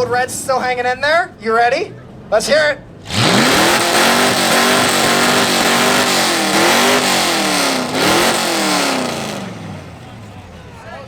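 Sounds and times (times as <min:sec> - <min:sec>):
engine revving through loud exhaust: 0:03.0 - 0:10.2.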